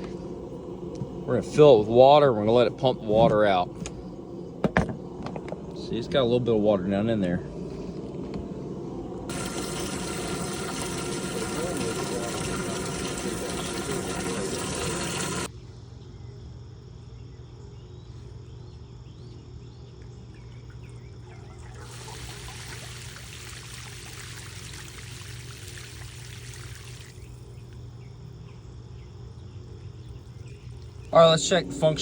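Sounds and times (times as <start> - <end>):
sump pump running: 0.0 - 6.4, 7.8 - 15.5, 20.8 - 27.8, 30.4 - 32.0
steady low hum: 0.0 - 32.0
water trickling: 9.3 - 15.5, 20.5 - 27.6, 30.2 - 31.6.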